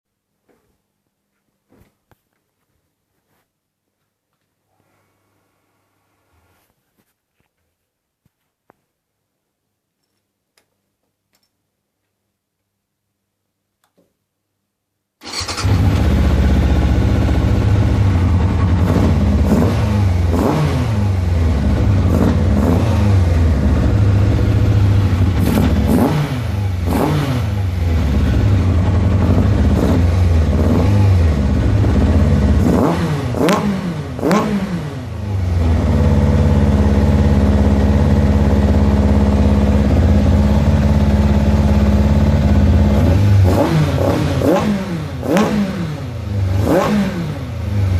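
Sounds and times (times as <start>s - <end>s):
motorcycle engine revving: 15.2s - 47.9s.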